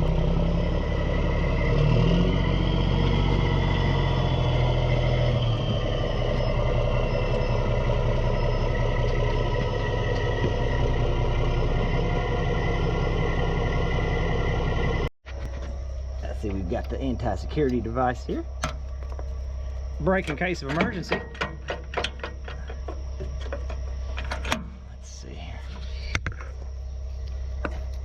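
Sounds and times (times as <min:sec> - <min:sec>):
heavy diesel engine running: 0:00.0 - 0:28.0.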